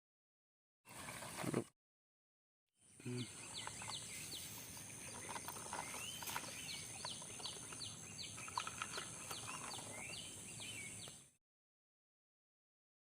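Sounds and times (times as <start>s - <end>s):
bird calling with downward chirps: 2.8s - 11.4s.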